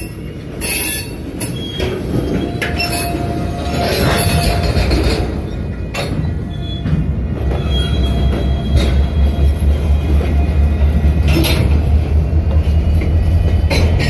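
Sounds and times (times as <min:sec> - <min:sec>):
wheel squeals: 0:00.0 - 0:10.6
train wheels rumbling on rail: 0:00.0 - 0:14.0.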